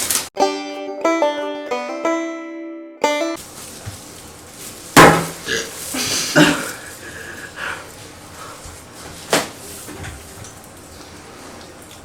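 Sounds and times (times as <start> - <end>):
sharp knock: 5.0 - 5.4.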